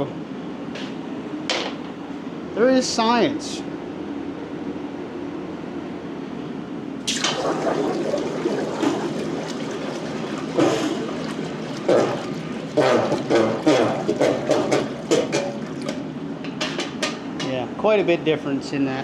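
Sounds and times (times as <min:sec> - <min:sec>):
steady hum: 0:07.0 - 0:17.1
hot metal hissing in water: 0:07.1 - 0:16.0.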